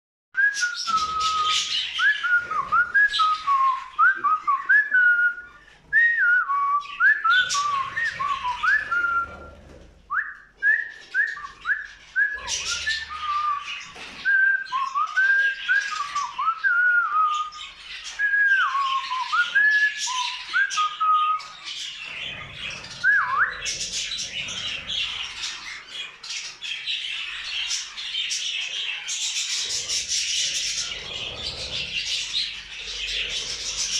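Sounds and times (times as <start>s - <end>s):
budgerigars chattering and chirping: 7.2s - 9.4s, 21.4s - 33.9s.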